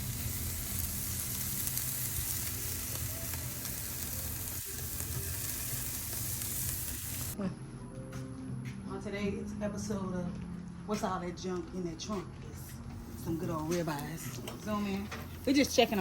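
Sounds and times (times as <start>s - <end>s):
steaks sizzling on a grill: 0.0s - 7.4s, 13.1s - 16.0s.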